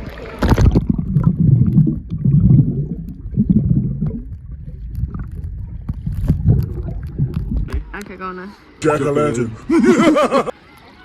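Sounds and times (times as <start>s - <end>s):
wind rumbling on microphone: 0.4s - 7.8s.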